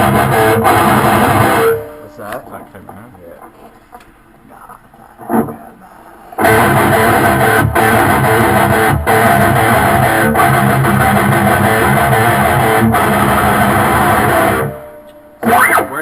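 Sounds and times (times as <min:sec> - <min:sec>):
band music with electric guitar: 0:00.0 - 0:02.1, 0:06.4 - 0:16.0.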